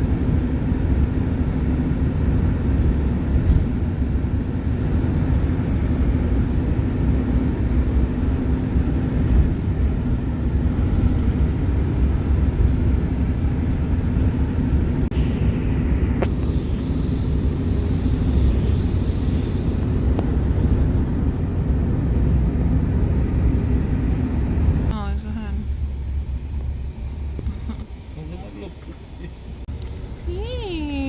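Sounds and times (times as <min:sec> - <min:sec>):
vehicle rumbling: 0:00.0 - 0:31.0
faint steady hum: 0:10.7 - 0:31.0.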